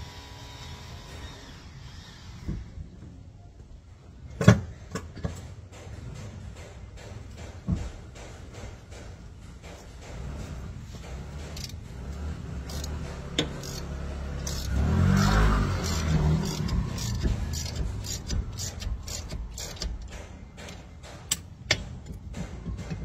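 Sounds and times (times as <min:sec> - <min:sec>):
metal hand tools clicking and knocking: 0:04.9 - 0:23.0
vehicle engine: 0:09.7 - 0:20.8.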